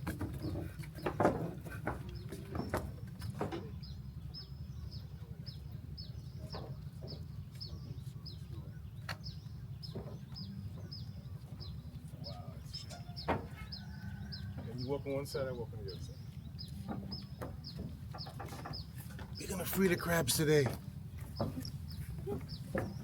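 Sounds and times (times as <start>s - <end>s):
bird chirping: 15.8s - 23.0s.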